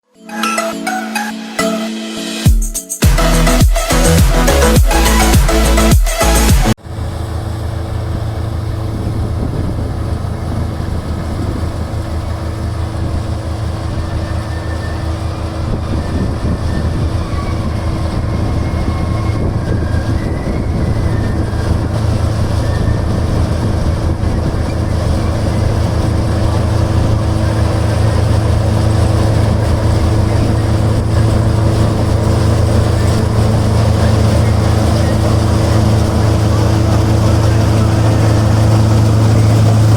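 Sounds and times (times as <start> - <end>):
combine harvester engine droning: 3.1 - 39.9.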